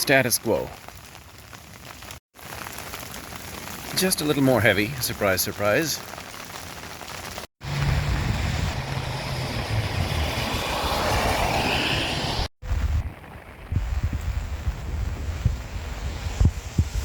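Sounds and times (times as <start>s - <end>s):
heavy rain falling: 0.0s - 11.9s
wind rumbling on microphone: 7.6s - 17.0s.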